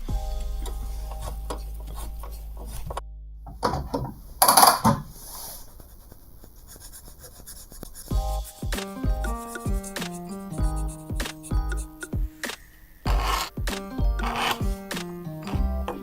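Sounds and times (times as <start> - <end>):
background music: 0.0 - 3.0, 8.1 - 16.0
knife scraping abrasive: 13.1 - 13.6, 14.2 - 15.6.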